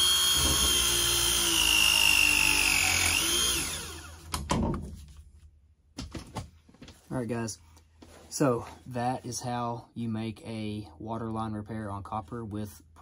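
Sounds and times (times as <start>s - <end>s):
press tool motor whining: 0.0s - 4.3s.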